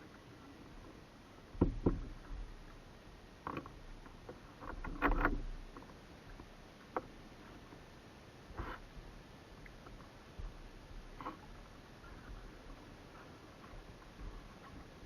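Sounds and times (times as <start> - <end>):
paddle splashes and knocks: 1.5 - 2.7.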